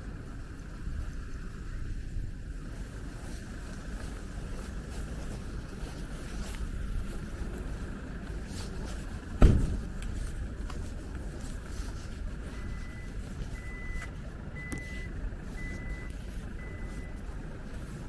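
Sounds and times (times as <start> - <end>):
street traffic rumbling: 0.0 - 18.0
loud thump: 9.4 - 9.9.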